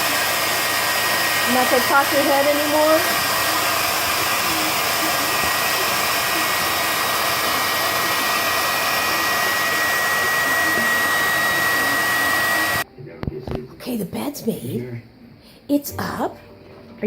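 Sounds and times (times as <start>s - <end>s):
electric air pump whirring: 0.0s - 12.8s.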